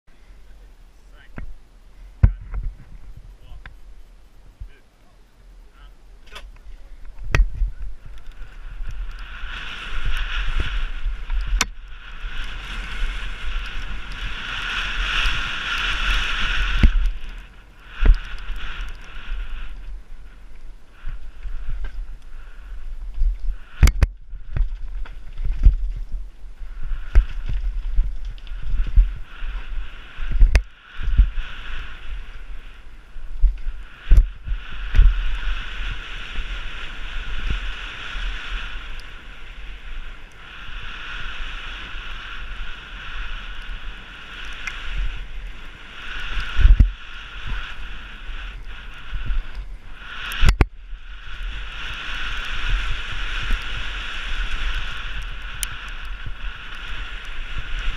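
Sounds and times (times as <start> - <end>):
wind rumble on microphone: 0.1 - 57.9
bike tyre noise: 5.4 - 57.9.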